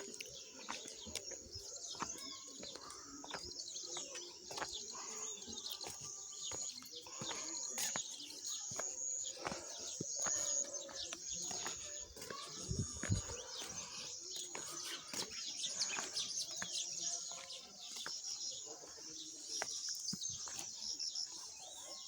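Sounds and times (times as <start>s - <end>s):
birds chirping and calling: 0.0s - 22.0s.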